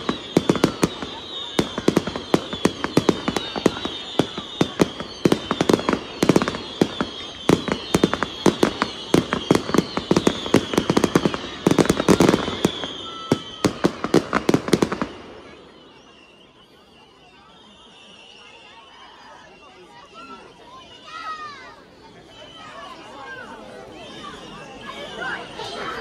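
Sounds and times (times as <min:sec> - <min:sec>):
fireworks bangs and crackles: 0:00.0 - 0:18.4.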